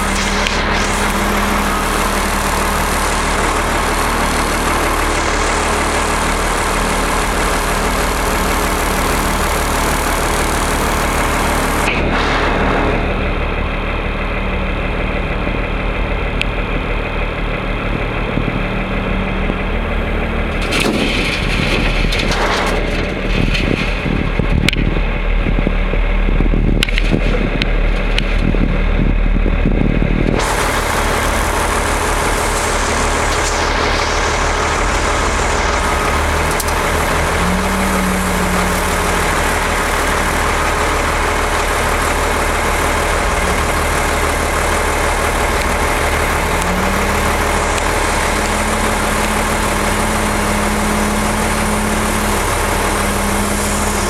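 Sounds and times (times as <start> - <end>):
heavy diesel engines running: 0.0 - 54.0
knocks and clatter: 20.5 - 25.8.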